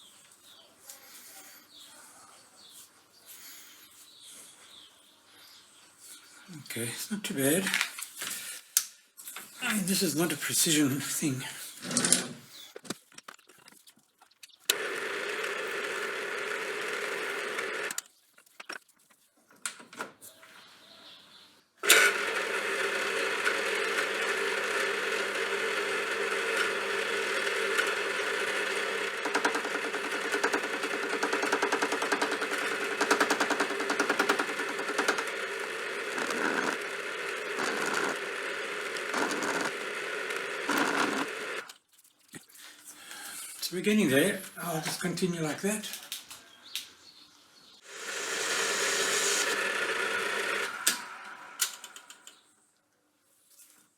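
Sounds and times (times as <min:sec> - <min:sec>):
lathe running: 0:14.7 - 0:18.0, 0:21.8 - 0:41.7, 0:47.9 - 0:52.2.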